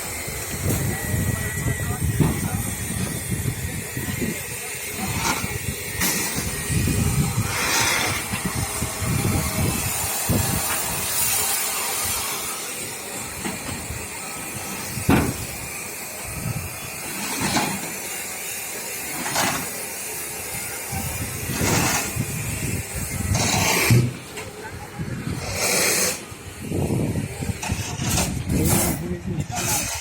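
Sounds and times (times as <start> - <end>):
steady hiss: 0.0 - 27.8.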